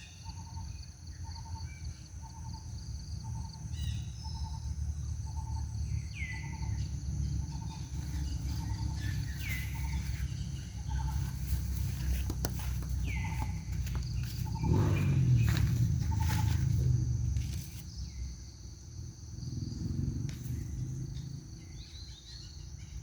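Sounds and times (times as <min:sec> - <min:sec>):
insects buzzing: 0:00.0 - 0:23.0
rustling: 0:11.0 - 0:18.0.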